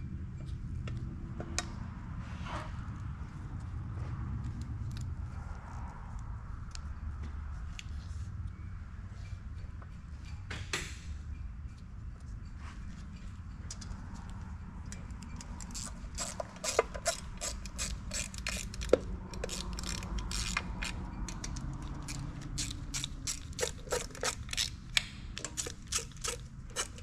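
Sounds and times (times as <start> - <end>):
ratchet wrench clicking: 14.9 - 27.0.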